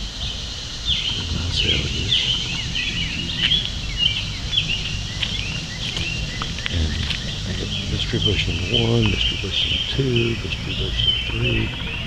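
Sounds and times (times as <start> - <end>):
birds chirping: 0.0 - 12.0
low rumble: 0.7 - 12.0.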